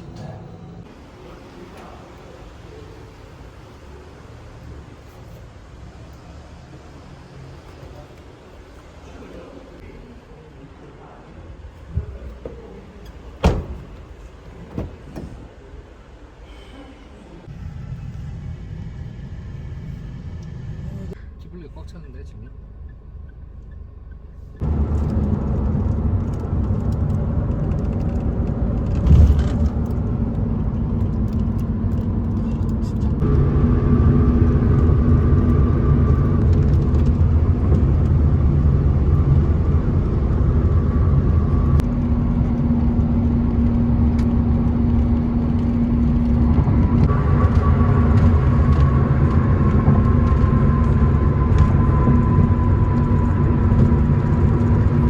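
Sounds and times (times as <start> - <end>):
vehicle engine rumbling: 0.0 - 16.7, 17.4 - 55.0.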